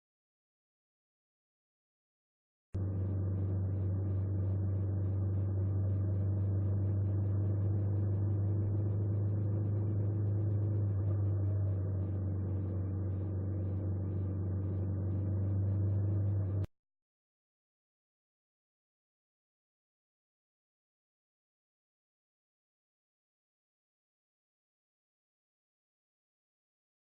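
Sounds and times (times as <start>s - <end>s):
engine droning steadily: 2.8s - 16.7s.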